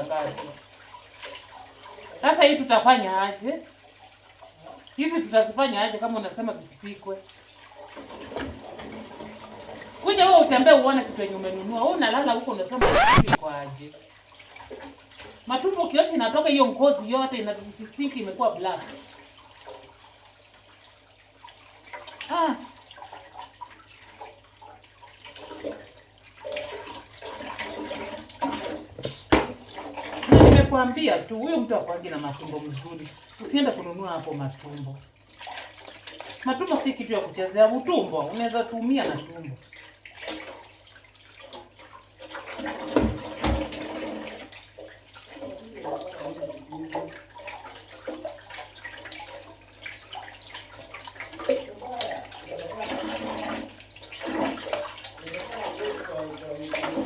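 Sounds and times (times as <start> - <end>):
water splashing and sloshing: 0.0 - 57.0.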